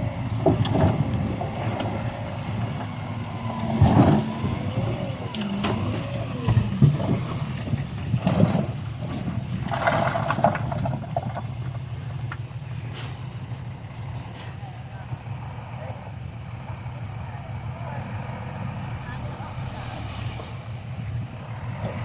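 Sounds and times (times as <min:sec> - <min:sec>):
diesel machinery running: 0:00.0 - 0:22.0
rattling clatter: 0:00.2 - 0:14.4.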